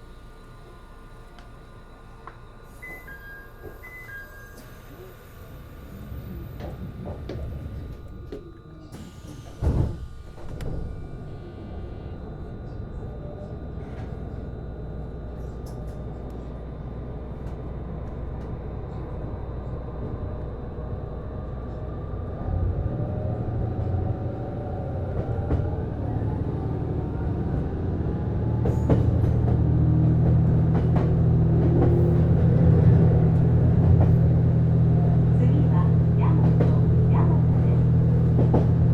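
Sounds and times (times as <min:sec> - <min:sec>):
traction motor whine: 0:00.0 - 0:28.2
diesel engine: 0:00.0 - 0:38.9.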